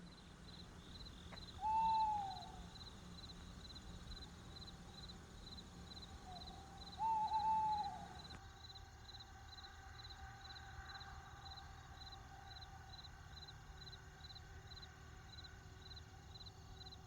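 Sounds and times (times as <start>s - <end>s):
owl hooting: 1.6s - 2.7s, 6.2s - 8.3s.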